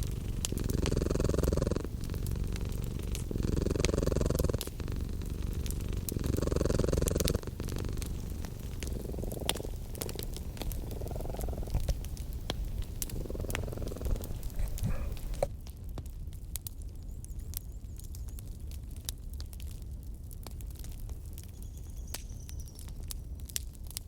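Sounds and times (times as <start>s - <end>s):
cat purring: 0.0s - 15.5s
crackling wood fire: 0.0s - 24.0s.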